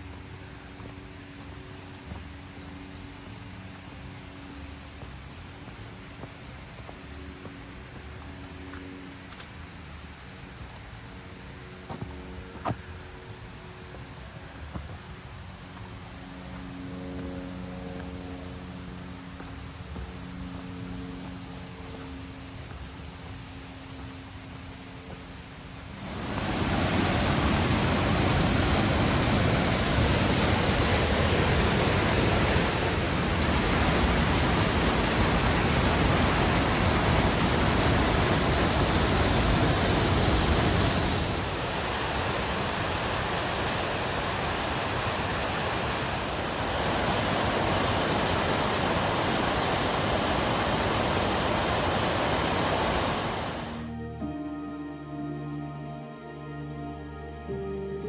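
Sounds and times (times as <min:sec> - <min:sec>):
waterfall rushing: 0:25.9 - 0:53.8.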